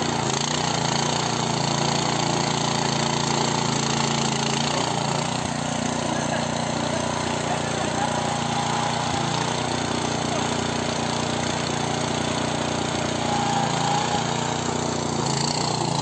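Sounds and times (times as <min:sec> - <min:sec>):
cultivator engine running: 0:00.0 - 0:16.0.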